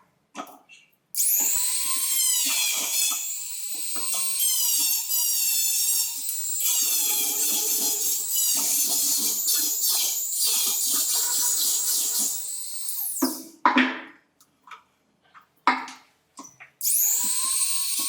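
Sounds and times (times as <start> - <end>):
power tool high-pitched whine: 1.2 - 13.5, 16.8 - 18.0.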